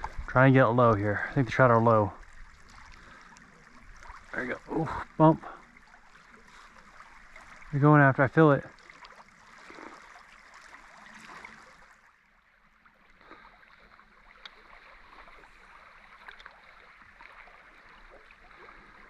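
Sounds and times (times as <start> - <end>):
river water flowing: 0.0 - 19.0
small ticks: 14.4 - 14.6.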